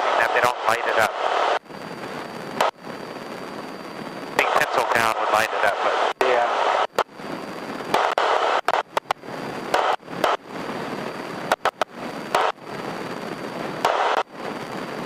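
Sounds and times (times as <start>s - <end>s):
airplane cabin engine and wind hiss: 0.0s - 15.0s
sharp pops: 2.6s - 2.8s, 7.9s - 10.5s, 11.5s - 12.6s, 13.8s - 14.3s.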